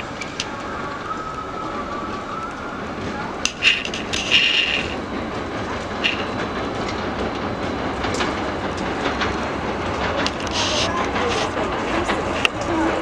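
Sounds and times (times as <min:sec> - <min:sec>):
train rumbling on rails: 0:00.0 - 0:13.0
wheels clicking over rail joints: 0:00.0 - 0:13.0
high wheel squeal: 0:00.1 - 0:05.1, 0:06.0 - 0:06.4.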